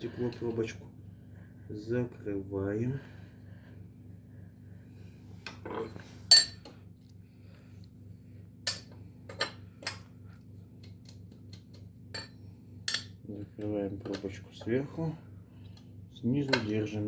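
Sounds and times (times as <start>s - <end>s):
steady low hum: 0.0s - 17.0s
metal clinks and taps: 12.2s - 13.1s.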